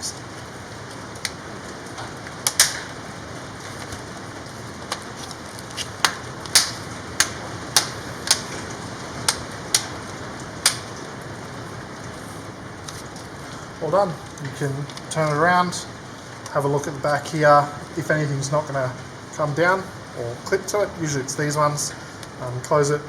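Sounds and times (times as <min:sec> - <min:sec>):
steady hiss: 0:00.0 - 0:23.0
plastic clips snapping into place: 0:02.4 - 0:02.9, 0:05.8 - 0:10.0, 0:10.6 - 0:11.0.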